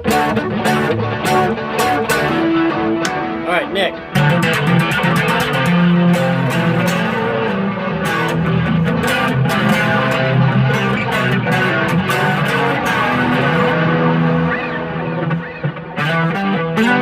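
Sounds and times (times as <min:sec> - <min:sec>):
clean electric guitar playing: 0:00.0 - 0:17.0.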